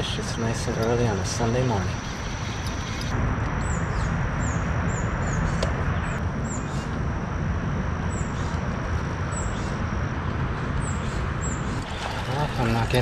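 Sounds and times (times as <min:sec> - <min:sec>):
thin high steady tone: 0:00.0 - 0:03.1, 0:11.8 - 0:13.0
small bird chirping: 0:00.2 - 0:06.9.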